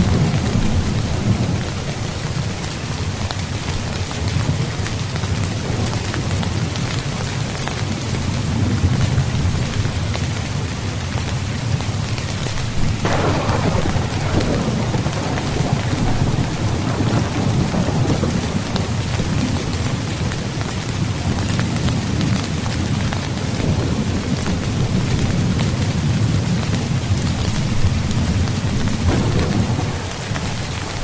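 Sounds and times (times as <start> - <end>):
low thunder rumbling: 0.0 - 3.2, 11.7 - 31.0
rain falling on a tent: 0.0 - 31.0
sharp thunderclap: 12.8 - 20.0, 27.8 - 31.0.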